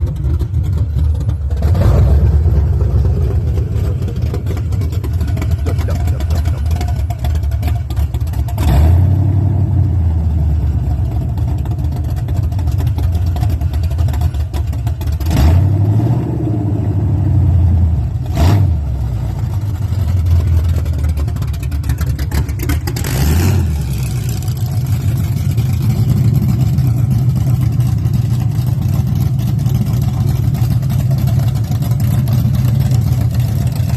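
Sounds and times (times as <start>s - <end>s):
engine idling and revving: 0.0s - 33.9s.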